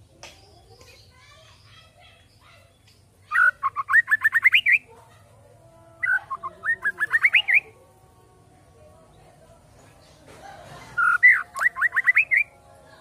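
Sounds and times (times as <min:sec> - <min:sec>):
bird singing whistled notes: 0:00.4 - 0:04.9, 0:06.0 - 0:07.8, 0:11.0 - 0:12.6.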